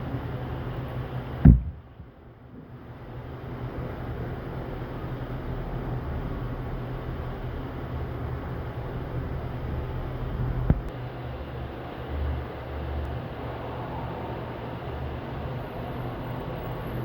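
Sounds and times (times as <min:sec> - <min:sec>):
steady hum and hiss: 0:00.0 - 0:17.0.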